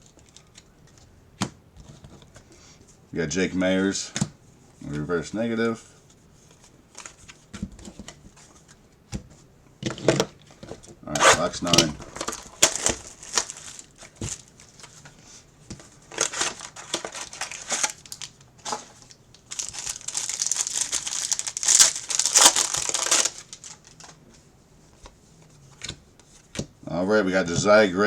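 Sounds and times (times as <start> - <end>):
plastic wrapping crinkling: 11.4 - 15.0, 15.8 - 24.2.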